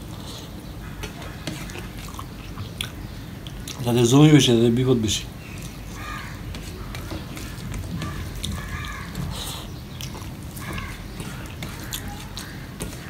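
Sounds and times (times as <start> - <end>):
person chewing food: 0.0 - 3.8, 5.5 - 13.0
hand mixing rice on plate: 1.0 - 2.3, 5.5 - 13.0
crow cawing: 5.9 - 9.4, 10.6 - 13.0.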